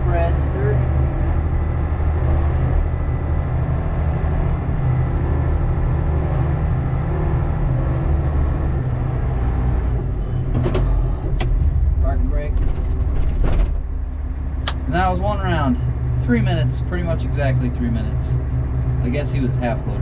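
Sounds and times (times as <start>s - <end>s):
diesel engine running under load: 0.0s - 20.0s
sharp clicks: 14.6s - 14.8s.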